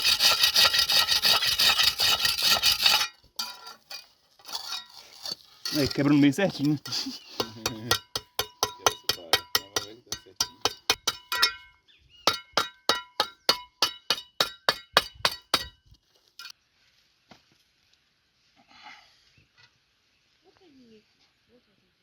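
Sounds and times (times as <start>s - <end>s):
metal tapping on brick: 7.3s - 11.7s, 12.3s - 15.8s.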